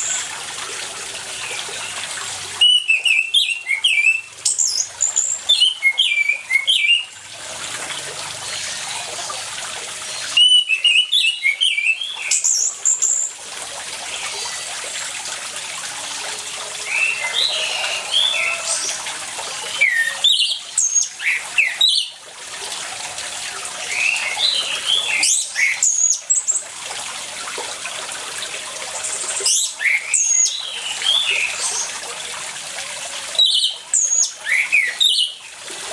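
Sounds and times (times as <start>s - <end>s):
running water: 0.0s - 35.9s
thrush singing whistled phrases: 2.6s - 7.1s, 10.4s - 13.2s, 16.8s - 22.1s.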